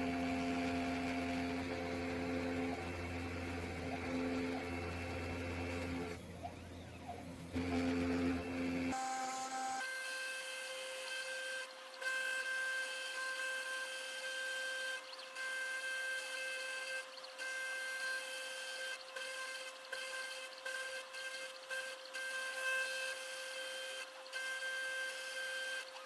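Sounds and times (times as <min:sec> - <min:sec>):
electric motor hum: 0:00.0 - 0:09.8
motor whine: 0:00.0 - 0:16.1.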